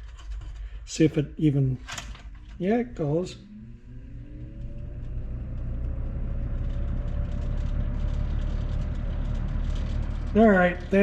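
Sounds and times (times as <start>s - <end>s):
electric fan motor humming: 0.0s - 11.0s.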